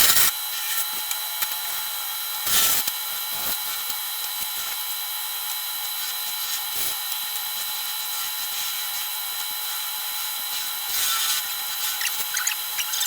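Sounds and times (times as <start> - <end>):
tool scraping spinning wood: 11.0 - 13.0.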